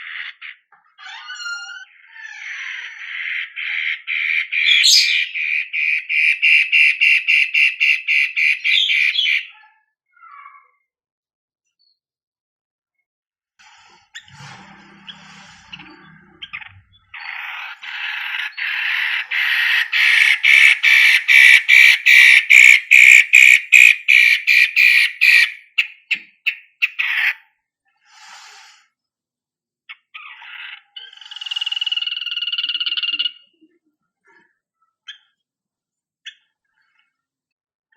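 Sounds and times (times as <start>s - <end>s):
bird rasping song: 0.0s - 10.8s, 14.1s - 27.5s, 29.9s - 33.6s, 35.0s - 35.4s.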